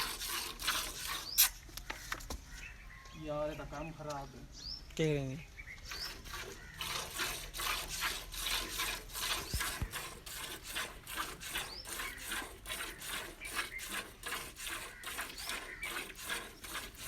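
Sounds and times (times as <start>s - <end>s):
milk squirting into a pail: 0.0s - 1.6s, 5.9s - 17.0s.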